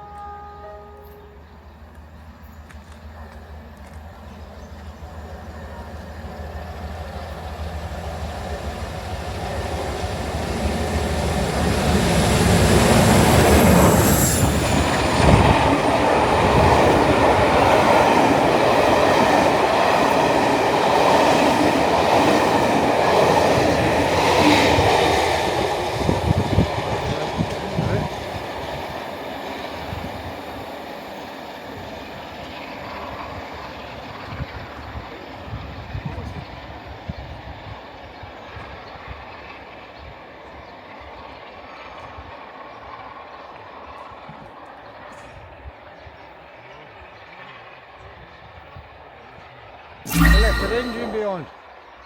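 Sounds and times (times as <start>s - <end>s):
train wheels rumbling on rails: 1.4s - 39.7s
high squeal from train wheels: 11.7s - 16.7s, 50.1s - 51.5s.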